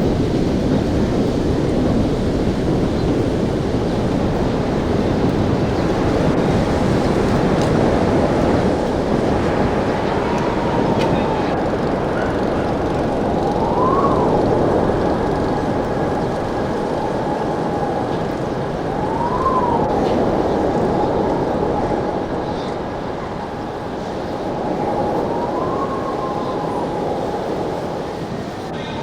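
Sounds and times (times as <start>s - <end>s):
wind noise: 0.0s - 29.0s
siren wailing: 6.2s - 29.0s.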